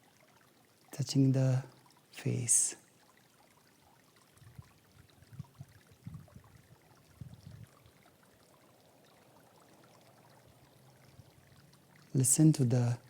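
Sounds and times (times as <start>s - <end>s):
stream flowing: 0.0s - 13.0s
wind bumping microphone: 4.4s - 7.8s.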